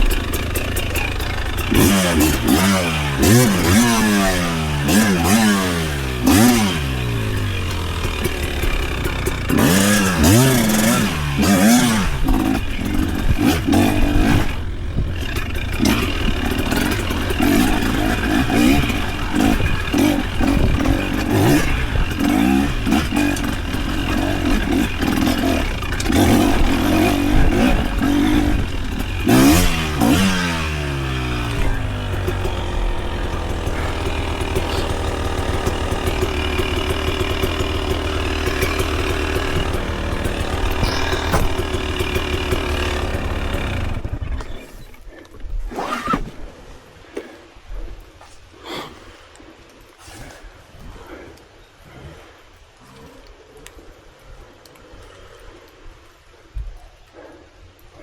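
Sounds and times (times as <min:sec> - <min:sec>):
off-road vehicle engine revving: 0:00.0 - 0:44.6.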